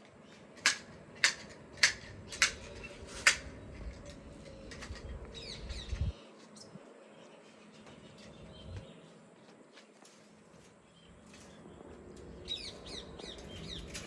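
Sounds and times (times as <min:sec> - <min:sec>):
garden shears snipping: 0:00.3 - 0:03.6.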